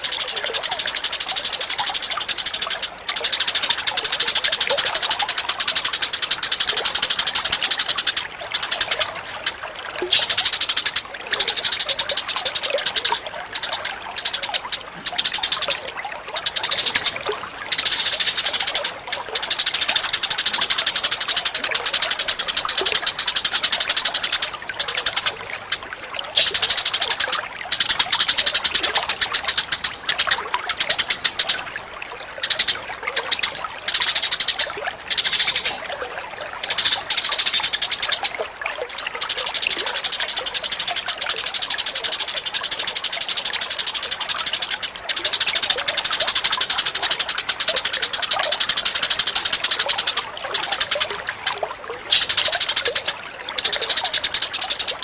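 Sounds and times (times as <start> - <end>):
small birds chirping: 0.0 - 31.7, 32.4 - 35.9, 36.6 - 51.2, 52.0 - 55.0
running water: 0.0 - 55.0.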